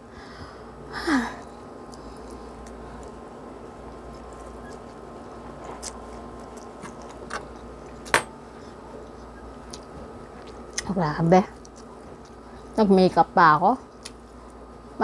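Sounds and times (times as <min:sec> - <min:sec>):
person chewing noodles: 0:01.9 - 0:08.1.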